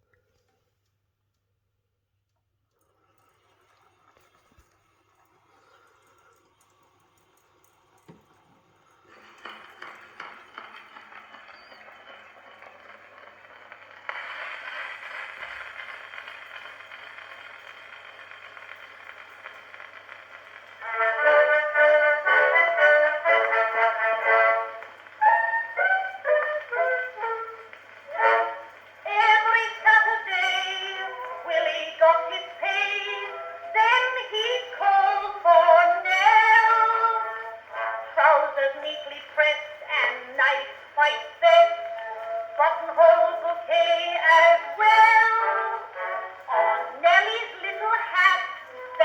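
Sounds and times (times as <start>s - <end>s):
record surface hiss and crackle: 2.2s - 49.0s
phonograph playing old song: 7.5s - 49.0s.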